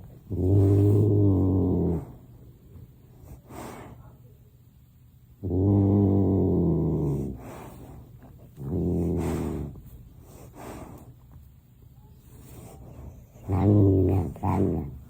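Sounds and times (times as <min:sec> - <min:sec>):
animal breathing or snuffling: 0:00.0 - 0:02.2, 0:03.2 - 0:04.1, 0:07.0 - 0:11.2, 0:12.2 - 0:15.0.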